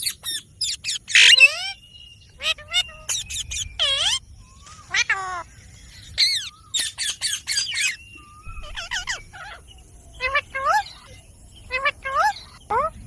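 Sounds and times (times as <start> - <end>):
parakeet squawking: 0.0 - 1.8, 2.4 - 4.2, 4.8 - 5.5, 6.2 - 9.6, 10.2 - 13.0.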